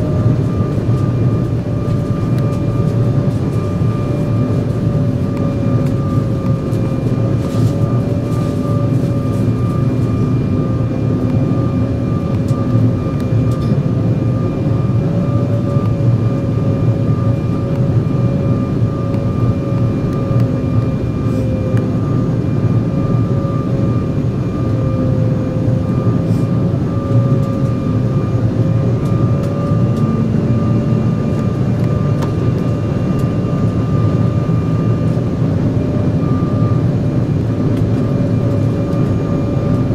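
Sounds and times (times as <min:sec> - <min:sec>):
jet cabin noise: 0:00.0 - 0:39.9
turbofan whine: 0:00.0 - 0:39.9.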